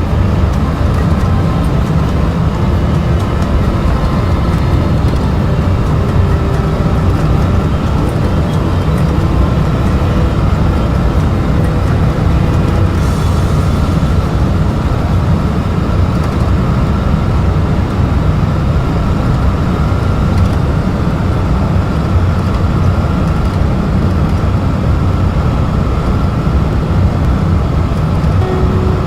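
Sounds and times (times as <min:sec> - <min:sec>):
faint steady high tone: 0:00.0 - 0:16.7, 0:28.4 - 0:29.0
cockpit airflow and engine noise: 0:00.0 - 0:29.0.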